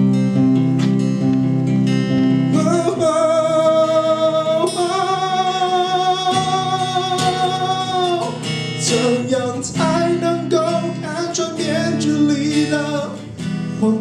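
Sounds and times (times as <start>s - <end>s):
acoustic guitar strumming: 0.0s - 14.0s
person singing long notes: 2.5s - 13.2s.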